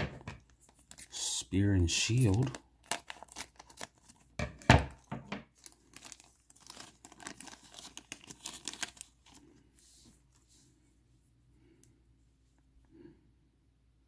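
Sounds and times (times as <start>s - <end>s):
plastic crinkling: 0.4s - 10.4s
plastic bags ripping: 2.0s - 4.3s, 4.9s - 9.4s.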